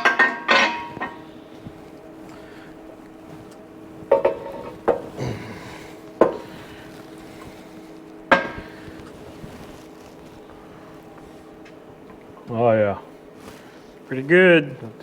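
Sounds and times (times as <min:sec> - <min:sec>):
steel parts clanking: 0:00.0 - 0:01.3, 0:04.1 - 0:05.2
steady low hum: 0:00.0 - 0:15.0.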